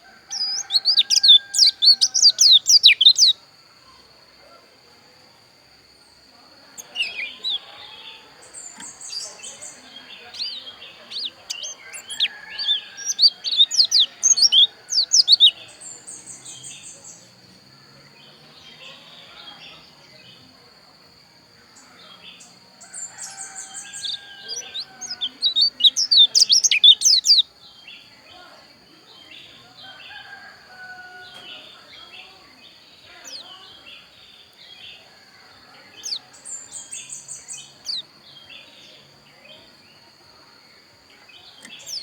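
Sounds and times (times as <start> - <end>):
bird twittering chirps: 0.0 - 3.4, 6.7 - 17.5, 21.8 - 28.1, 33.0 - 34.6, 35.9 - 38.1, 41.4 - 42.0
buzzy high bird trills: 0.3 - 3.4, 8.5 - 17.2, 22.9 - 27.4.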